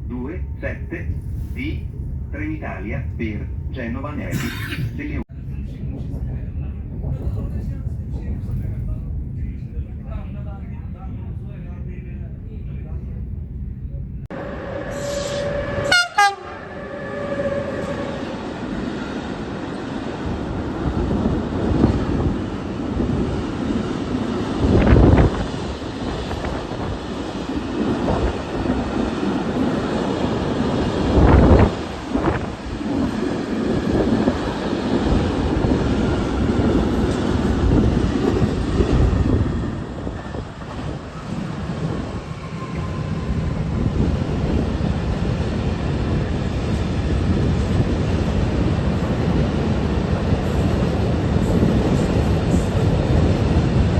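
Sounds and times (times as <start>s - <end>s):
train rumbling on rails: 0.0s - 53.9s
train horn blasts: 14.3s - 18.4s.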